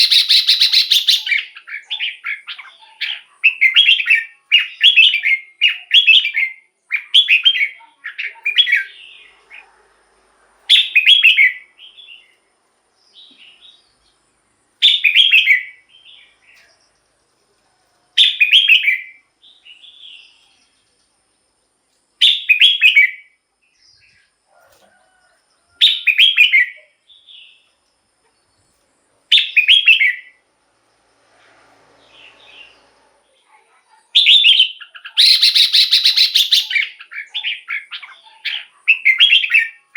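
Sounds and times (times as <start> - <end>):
bird singing bubbling phrases: 0.0 - 9.4, 34.2 - 39.9.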